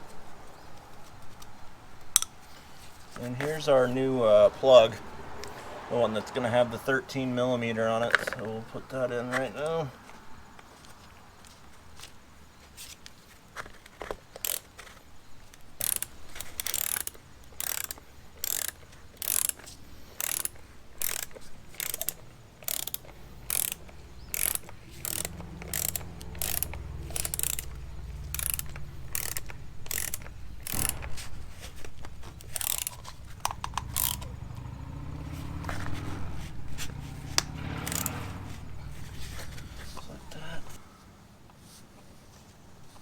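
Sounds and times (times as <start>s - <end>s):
hand ratchet clicking: 2.0s - 2.5s, 8.0s - 8.6s, 14.0s - 34.6s, 35.3s - 40.8s.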